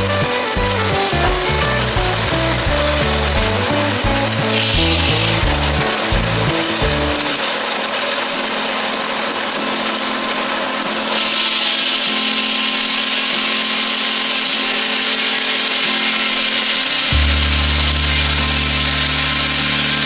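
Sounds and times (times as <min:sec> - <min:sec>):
deep steady hum: 0:00.0 - 0:07.4, 0:17.1 - 0:20.0
circular saw cutting log: 0:00.0 - 0:20.0.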